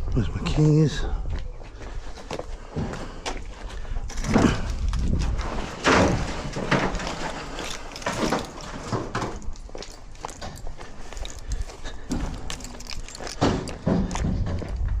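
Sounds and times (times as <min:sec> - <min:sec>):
van door scraping and knocking: 0:04.1 - 0:09.5.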